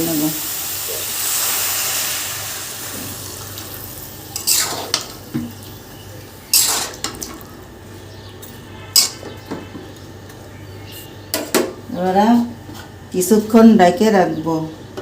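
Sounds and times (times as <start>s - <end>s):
sizzling hiss: 0.0s - 5.3s.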